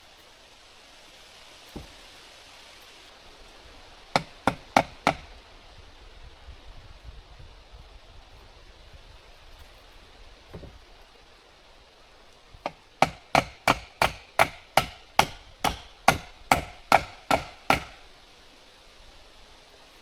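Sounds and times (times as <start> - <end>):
hammer striking wood: 1.7 - 2.0, 4.1 - 5.3, 12.6 - 18.0.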